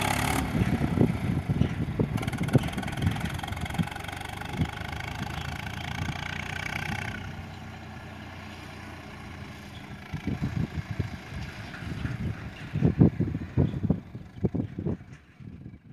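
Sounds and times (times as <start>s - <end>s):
diesel tractor engine running: 0.0s - 15.9s
wind buffeting microphone: 0.4s - 6.3s, 9.7s - 15.9s.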